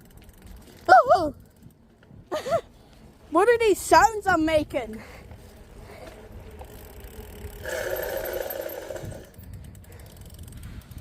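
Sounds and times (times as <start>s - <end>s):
wind rumble on microphone: 0.0s - 11.0s
bicycle brake screech: 6.7s - 10.4s.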